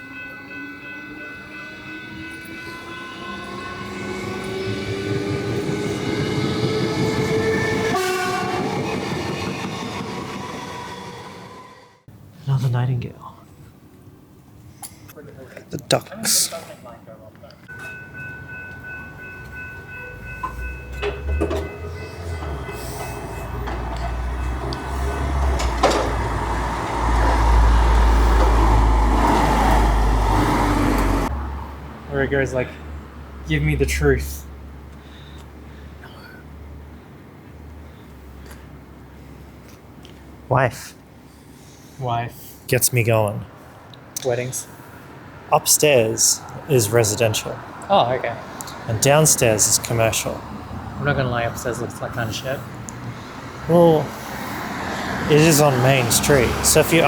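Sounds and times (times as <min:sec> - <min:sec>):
train accelerating: 0:00.0 - 0:12.1, 0:17.7 - 0:31.6, 0:45.6 - 0:47.7, 0:48.7 - 0:57.0
train sharp clacks: 0:17.7 - 0:31.3.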